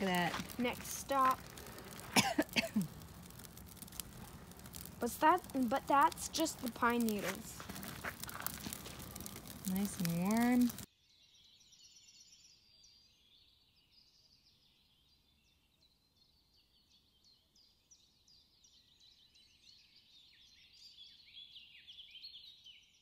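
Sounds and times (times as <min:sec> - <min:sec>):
birds chirping: 0:00.0 - 0:10.9.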